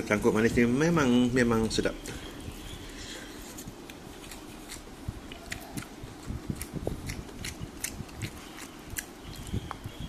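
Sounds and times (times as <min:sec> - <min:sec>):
person chewing food: 0:02.0 - 0:10.0.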